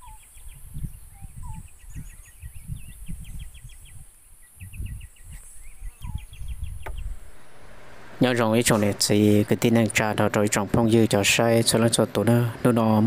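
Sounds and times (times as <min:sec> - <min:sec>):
wind buffeting microphone: 0:00.0 - 0:11.6
birds chirping: 0:00.0 - 0:13.0
steady high hiss: 0:06.8 - 0:13.0.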